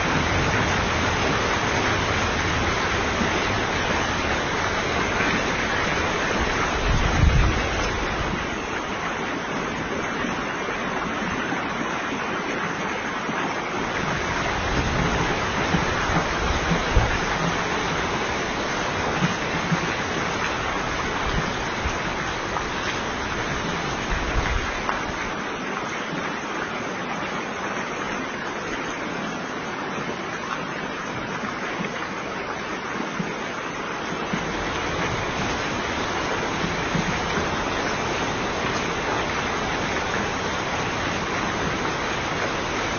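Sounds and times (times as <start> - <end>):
heavy rain: 0.0 - 42.9
rushing floodwater: 0.0 - 42.9.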